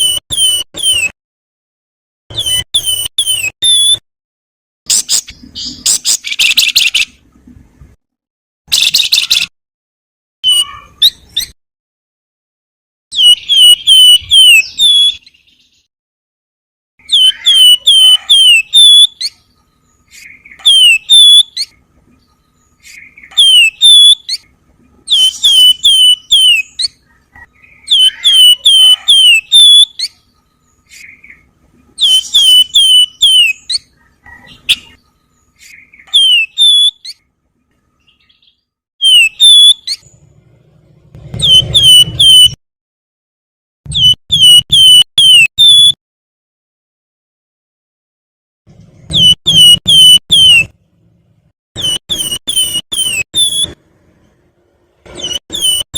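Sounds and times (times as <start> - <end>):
songbird whistled song: 0.0 - 1.2, 2.3 - 4.0, 4.9 - 7.2, 8.7 - 9.5, 10.4 - 11.6, 13.1 - 15.9, 17.0 - 40.3, 41.2 - 42.6, 43.9 - 46.0, 49.1 - 50.7, 51.8 - 53.8, 55.2 - 55.9.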